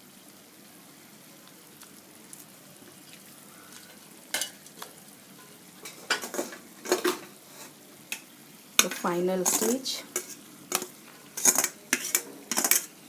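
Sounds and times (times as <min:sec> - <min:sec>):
faint steady hiss: 0:00.0 - 0:13.0
metal spoon scraping a pot: 0:08.8 - 0:13.0.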